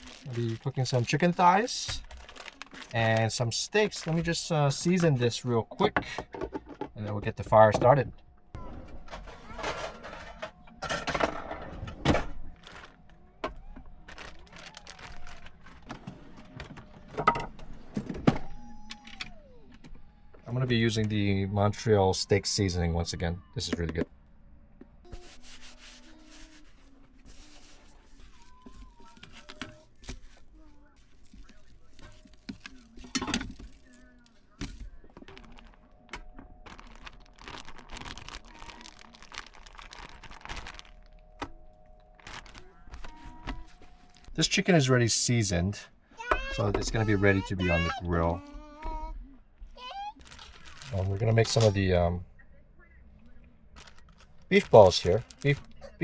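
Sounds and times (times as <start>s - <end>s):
plastic packaging crinkling: 0.0s - 5.4s, 12.4s - 17.0s, 25.2s - 44.6s, 49.8s - 51.9s, 53.7s - 56.0s.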